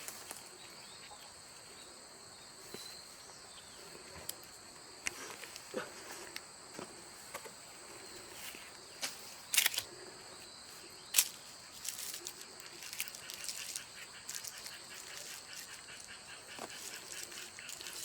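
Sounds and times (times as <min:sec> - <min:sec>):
crickets chirping: 0:00.0 - 0:18.0
clicks and rustles: 0:09.0 - 0:09.9, 0:11.1 - 0:18.0.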